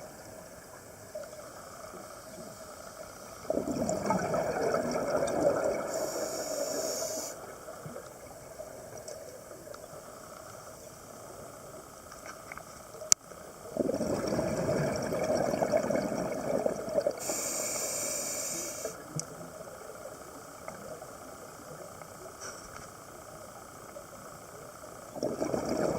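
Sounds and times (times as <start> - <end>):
diver exhaling bubbles: 3.4 - 7.2, 13.8 - 17.4, 25.2 - 25.9
air hissing through regulator: 5.7 - 7.7, 17.2 - 19.2.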